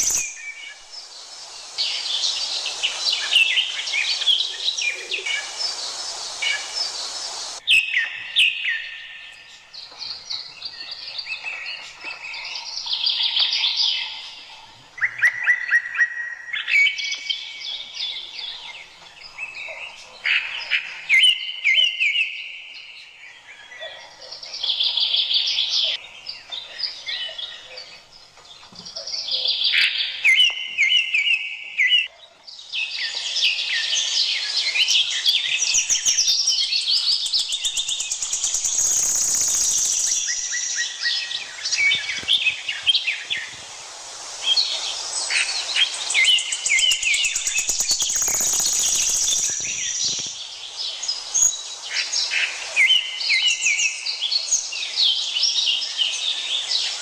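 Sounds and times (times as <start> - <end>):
loud steady hiss: 0.0 - 15.0, 32.5 - 57.0
birds singing: 0.0 - 57.0.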